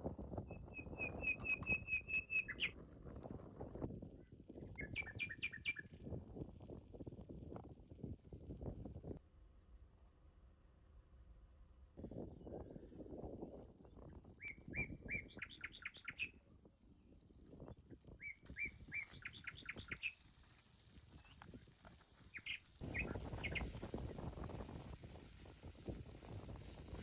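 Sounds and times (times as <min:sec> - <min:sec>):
songbird singing: 0:00.5 - 0:02.8, 0:04.8 - 0:05.9, 0:14.4 - 0:16.4, 0:18.2 - 0:20.2, 0:22.3 - 0:23.7.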